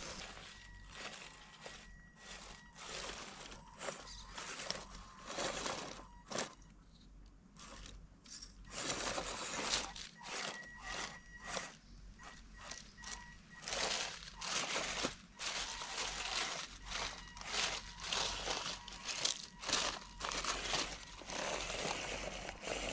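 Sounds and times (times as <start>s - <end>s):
tyres crunching on stones and leaves: 0.0s - 6.6s, 13.0s - 22.9s
small electric motor whine: 8.7s - 22.9s.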